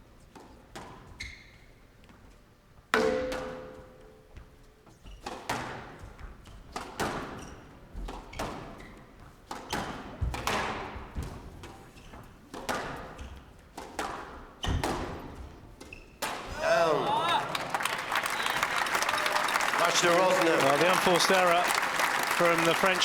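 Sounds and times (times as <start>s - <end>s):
squash ball cracking off rackets and walls: 12.2s - 16.6s.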